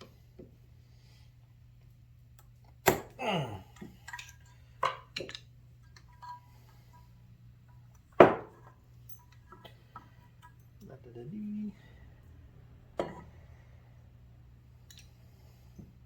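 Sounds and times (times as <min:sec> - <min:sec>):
person grunting: 0:03.2 - 0:03.8.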